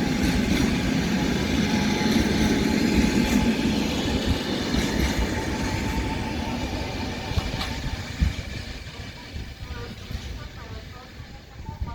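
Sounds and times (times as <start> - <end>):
train rolling over rails: 0.0 - 11.9.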